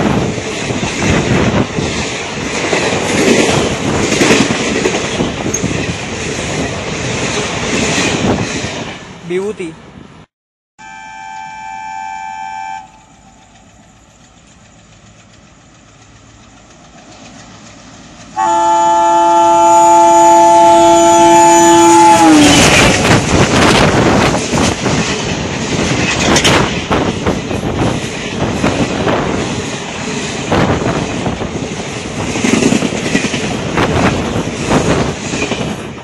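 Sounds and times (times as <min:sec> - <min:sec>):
train horn: 0:10.8 - 0:13.3, 0:18.4 - 0:22.9.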